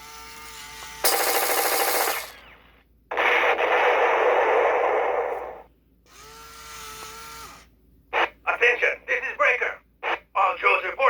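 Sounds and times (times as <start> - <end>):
electronic toy gunfire: 1.0 - 4.4.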